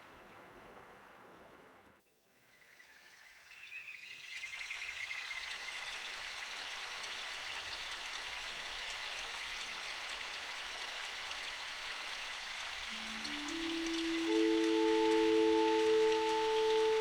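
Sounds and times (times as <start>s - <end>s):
faint ticks of raindrops: 4.3s - 17.0s
rain hissing: 5.6s - 17.0s.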